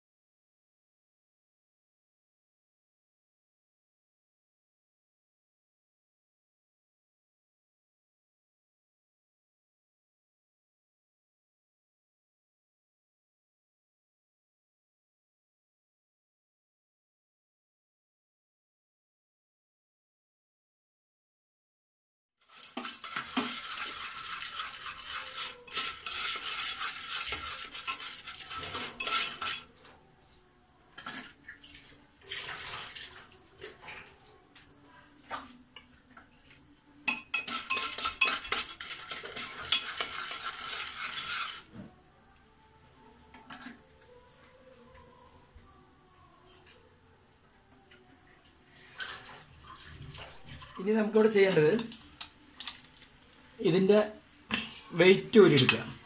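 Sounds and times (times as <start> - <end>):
metal spoon scraping pan: 22.5 - 29.9, 37.1 - 41.8.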